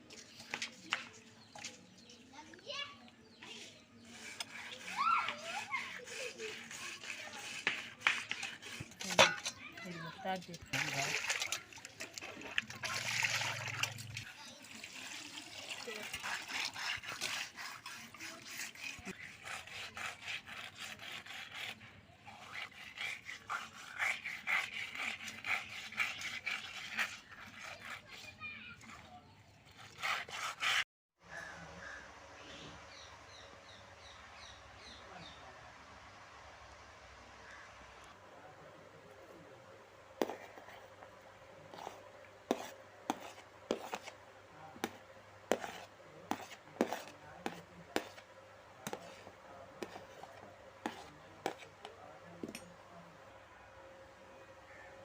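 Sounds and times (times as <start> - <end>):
rhythmic scraping strokes: 3.4 - 10.2, 14.2 - 28.9.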